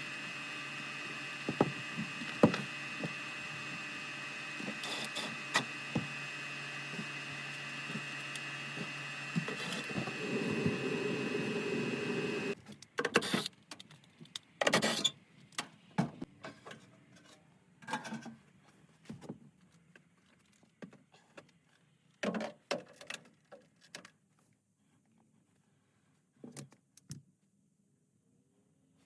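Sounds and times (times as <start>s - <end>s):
furnace blower humming: 0.0s - 12.6s.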